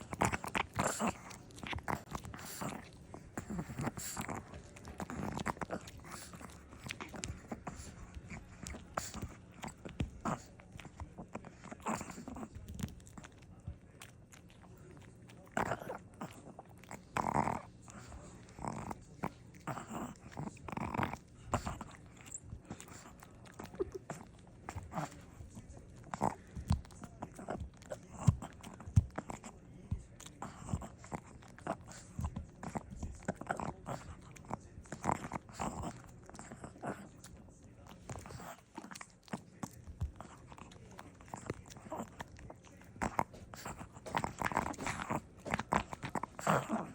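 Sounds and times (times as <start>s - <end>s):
dog chewing on a hard chew: 0.0s - 46.9s.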